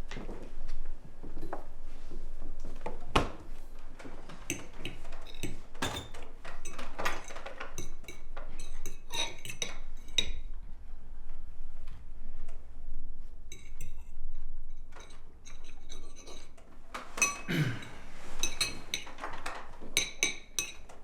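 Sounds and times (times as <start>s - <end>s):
cutlery and dishes clinking: 4.4s - 10.4s, 14.9s - 21.0s.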